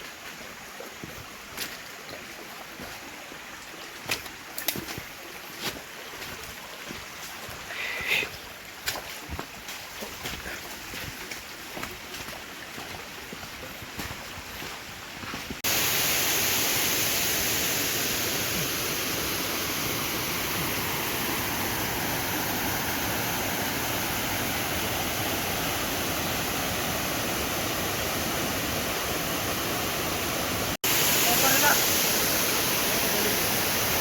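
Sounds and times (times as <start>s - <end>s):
waterfall rushing: 15.6s - 34.0s.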